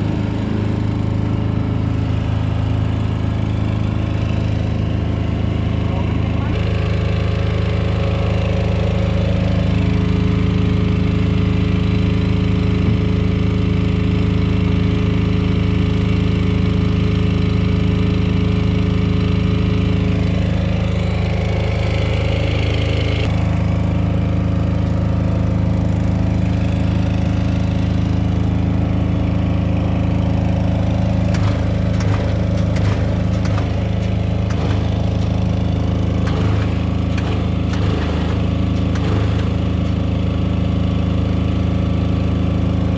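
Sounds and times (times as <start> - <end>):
machine hum: 30.0 - 41.6.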